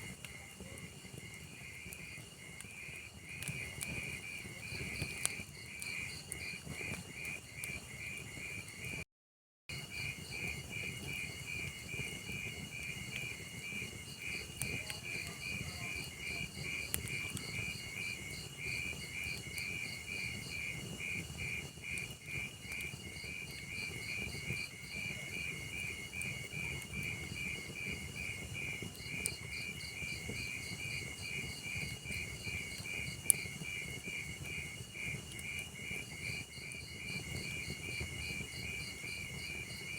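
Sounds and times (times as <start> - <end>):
wood fire crackling: 0.0 - 9.0, 9.7 - 39.9
cricket chirping: 27.0 - 39.9.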